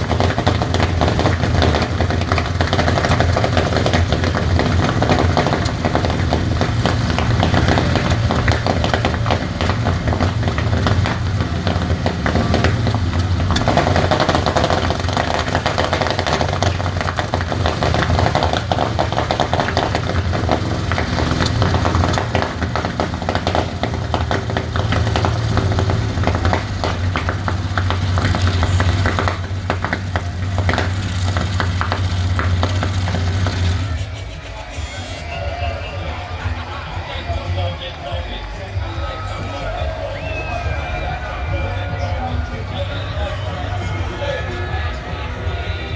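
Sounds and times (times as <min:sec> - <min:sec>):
aero engine running steadily: 0:00.0 - 0:34.2.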